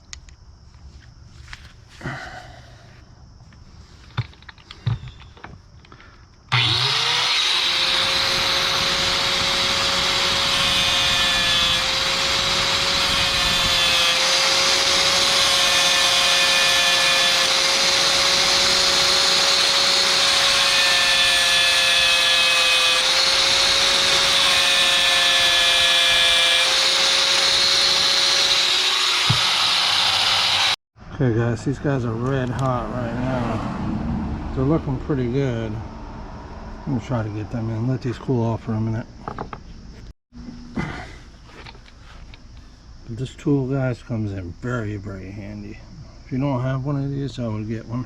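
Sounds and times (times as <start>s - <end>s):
cutoff tool grinding metal: 6.5s - 30.8s.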